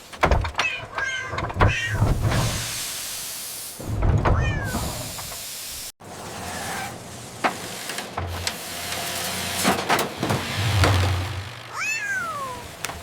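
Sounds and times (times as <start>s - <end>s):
machinery clicks and knocks: 0.0s - 2.6s
cat meowing: 0.6s - 2.0s, 4.4s - 5.0s, 11.7s - 12.8s
hissing factory machinery: 7.0s - 13.0s.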